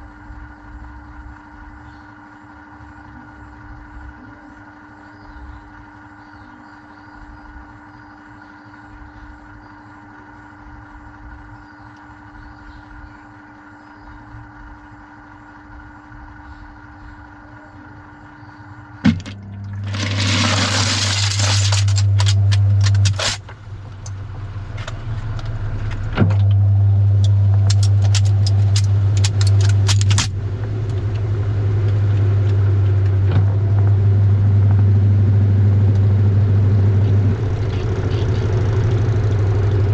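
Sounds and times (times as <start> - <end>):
washing machine drone: 0.0 - 39.9
keys clattering against drum: 27.7 - 30.3.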